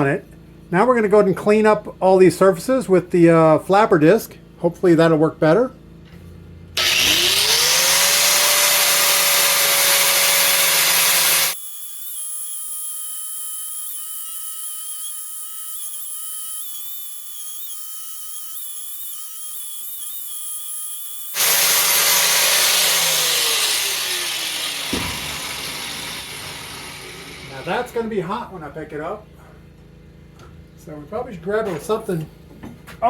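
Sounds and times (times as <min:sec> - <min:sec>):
angle grinder grinding steel: 0:06.8 - 0:28.1.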